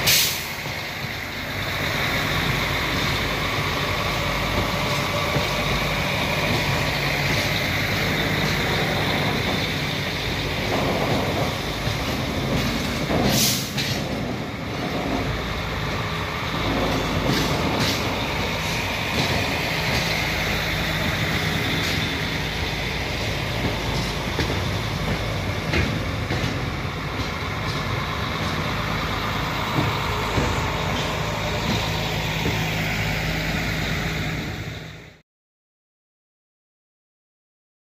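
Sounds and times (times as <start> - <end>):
train engine hum: 0.0 - 35.2
wheels rumbling on rail: 0.0 - 35.2.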